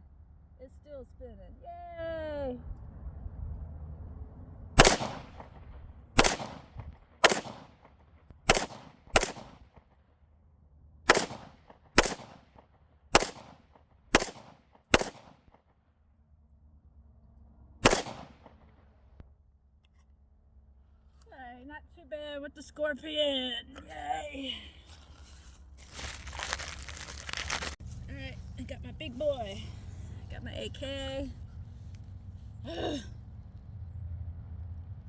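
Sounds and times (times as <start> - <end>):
gunshots: 4.8 - 9.8, 11.1 - 15.6, 17.8 - 18.8.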